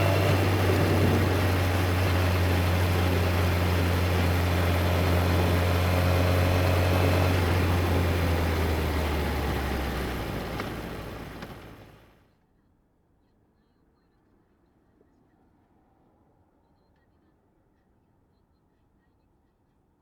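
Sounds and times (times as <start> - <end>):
motorcycle engine humming: 0.0 - 12.1.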